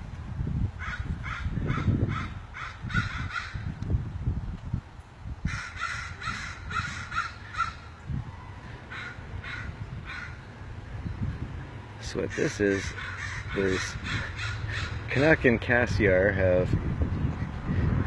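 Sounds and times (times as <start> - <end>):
crows cawing: 0.8 - 3.7, 5.4 - 8.0, 8.8 - 10.5, 12.3 - 15.1.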